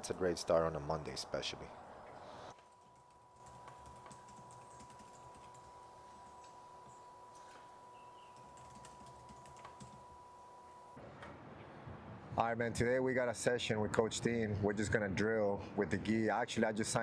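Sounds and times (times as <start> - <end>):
thin steady tone: 2.2 - 11.0
typing on computer keyboard: 2.6 - 6.6, 8.3 - 10.1.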